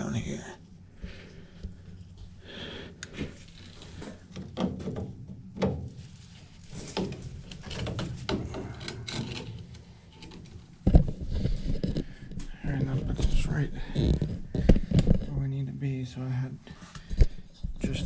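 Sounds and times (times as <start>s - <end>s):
plastic scraping and rubbing: 3.2s - 15.4s
plastic pipe knocks and clicks: 4.3s - 6.0s.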